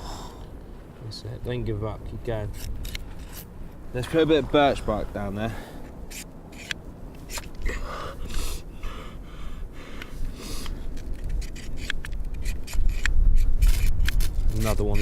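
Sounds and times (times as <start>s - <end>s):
knife scraping fire steel: 6.0s - 7.7s, 10.5s - 15.0s
wind rumble on microphone: 9.6s - 15.0s.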